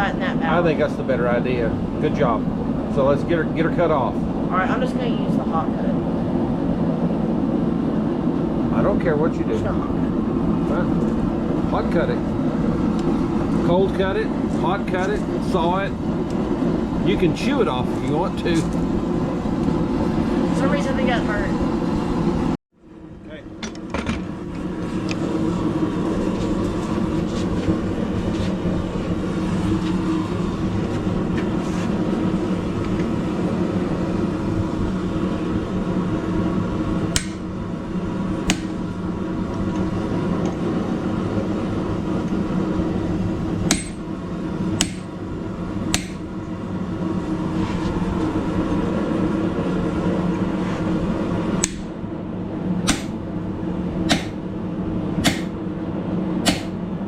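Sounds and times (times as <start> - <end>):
steady low drone: 0.0 - 57.0
hammer blows on steel anvil: 37.2 - 37.5, 38.5 - 38.8, 43.7 - 44.1, 44.8 - 45.1, 45.9 - 46.3, 51.6 - 51.9, 52.9 - 53.2, 54.1 - 54.4, 55.2 - 55.6, 56.4 - 56.8.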